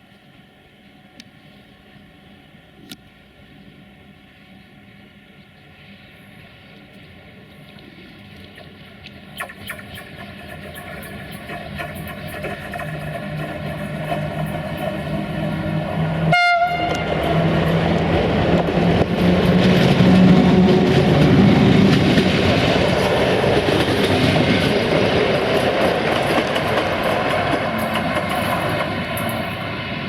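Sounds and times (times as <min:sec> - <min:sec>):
train passing on rails: 0:09.3 - 0:30.0
train horn: 0:15.6 - 0:21.9.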